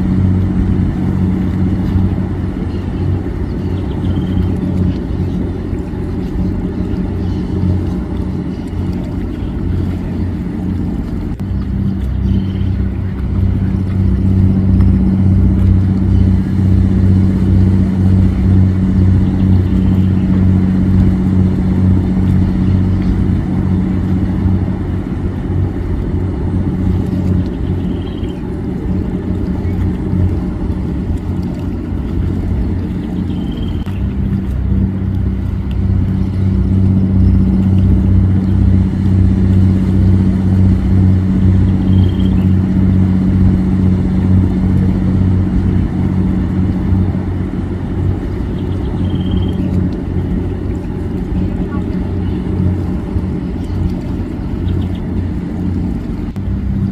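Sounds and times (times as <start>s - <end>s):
motorboat engine humming: 0.0s - 56.9s
faint high chirp: 41.8s - 42.5s, 48.6s - 49.7s.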